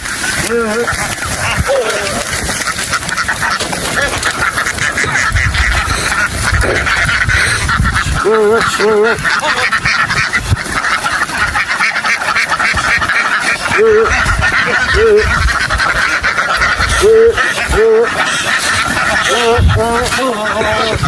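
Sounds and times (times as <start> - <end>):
drawn-out duck calls: 0.0 - 21.0
flock of ducks quacking: 0.0 - 21.0.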